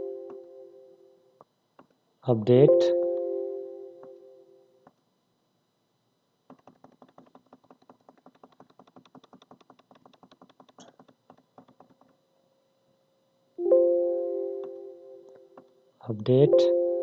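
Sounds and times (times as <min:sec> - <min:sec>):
rapid computer clicking: 0:06.5 - 0:12.2.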